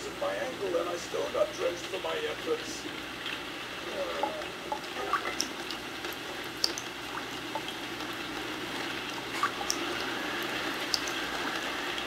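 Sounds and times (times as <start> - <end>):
sharp drips and taps: 4.2 - 9.9, 10.8 - 12.0.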